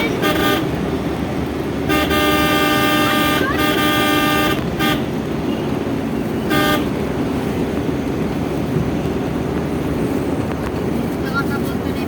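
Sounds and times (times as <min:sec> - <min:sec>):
vehicle horn honking: 0:00.0 - 0:00.8, 0:01.8 - 0:05.2, 0:06.4 - 0:07.0
road rumble from moving car: 0:00.0 - 0:12.0.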